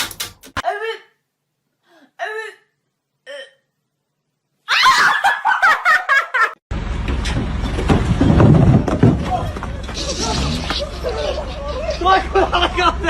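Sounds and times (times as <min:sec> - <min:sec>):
person laughing: 0:09.9 - 0:13.0.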